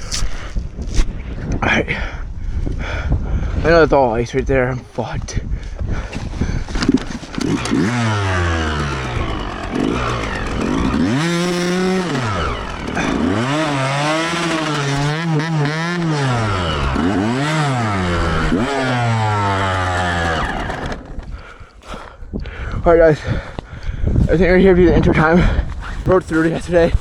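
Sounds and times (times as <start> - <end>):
dirt bike engine revving: 6.8 - 21.4.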